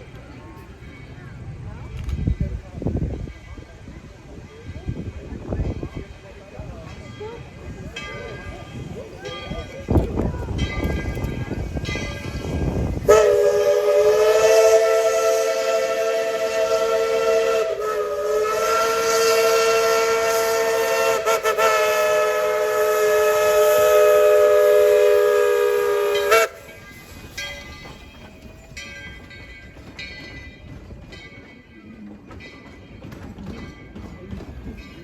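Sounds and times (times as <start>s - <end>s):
steam whistle chord: 13.1s - 26.6s.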